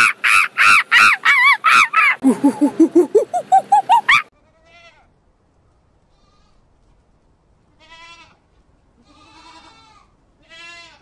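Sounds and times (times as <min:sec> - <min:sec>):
sheep bleating: 0:09.0 - 0:11.0.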